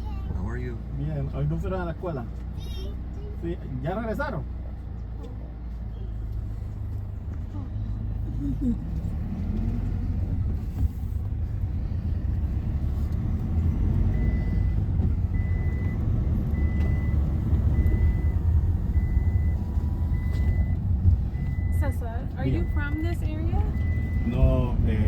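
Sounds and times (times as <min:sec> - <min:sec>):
vehicle engine rumbling: 0:00.0 - 0:25.0
reversing alarm beeping: 0:14.1 - 0:24.4.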